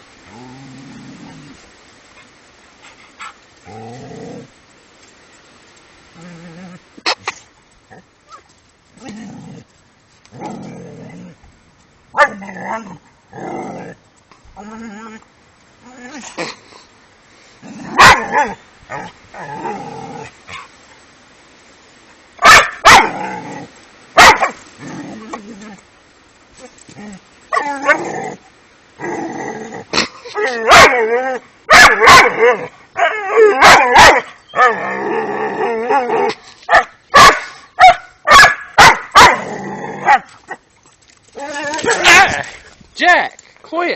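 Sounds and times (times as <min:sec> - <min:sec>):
dog barking and yelping: 0:12.1 - 0:12.9, 0:17.9 - 0:19.6, 0:22.4 - 0:23.3, 0:24.2 - 0:24.6, 0:27.5 - 0:28.1, 0:30.3 - 0:35.0, 0:35.8 - 0:40.6, 0:41.4 - 0:42.4
dog calling: 0:22.4 - 0:23.2.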